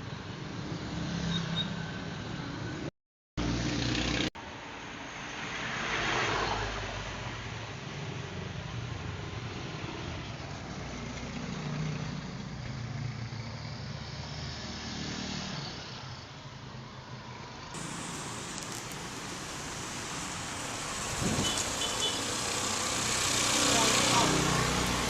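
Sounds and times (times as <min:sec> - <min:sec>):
road noise: 0:00.0 - 0:25.0
vehicle engine running: 0:17.8 - 0:25.0.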